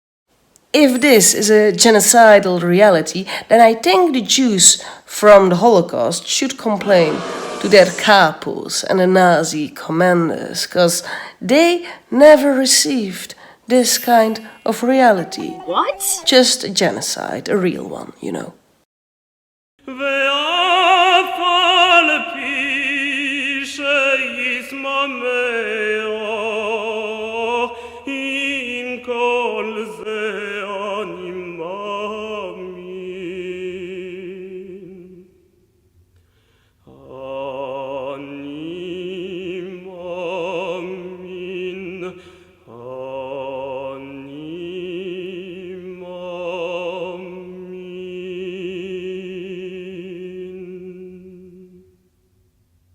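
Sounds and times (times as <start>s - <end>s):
operatic singing with vibrato: 6.8s - 9.0s, 13.7s - 17.4s.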